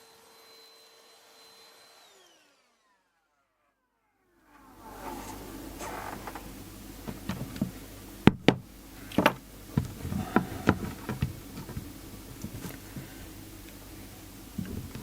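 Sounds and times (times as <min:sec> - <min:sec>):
low steady hum: 0:04.2 - 0:15.0
objects knocking on workbench: 0:07.1 - 0:13.1.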